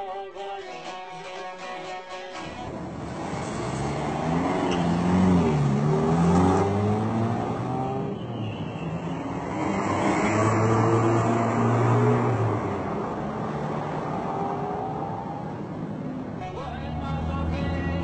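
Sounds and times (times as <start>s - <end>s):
car engine accelerating: 2.6s - 8.1s, 9.4s - 16.0s, 16.7s - 18.0s.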